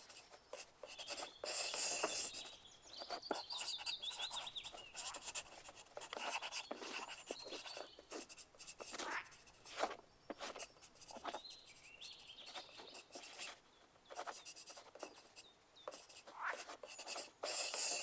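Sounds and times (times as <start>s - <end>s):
pencils scratching on paper: 0.0s - 18.0s.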